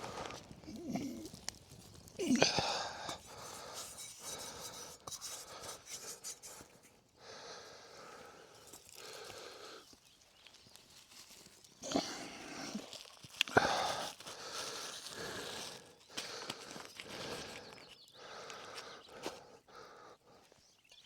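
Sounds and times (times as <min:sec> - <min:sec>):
person grunting: 0:02.2 - 0:02.9.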